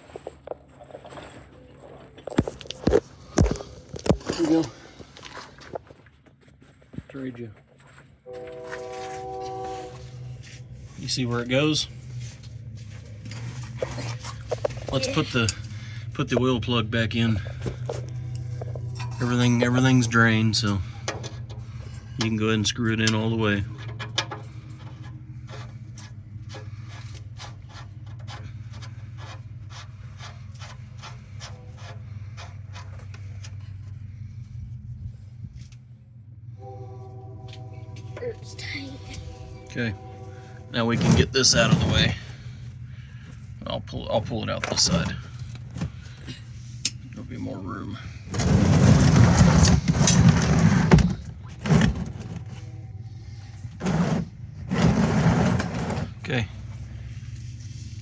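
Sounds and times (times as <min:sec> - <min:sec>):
steady low hum: 0:00.0 - 0:58.0
drain plug rasping strokes: 0:17.4 - 0:33.8, 0:39.1 - 0:43.3, 0:48.1 - 0:58.0.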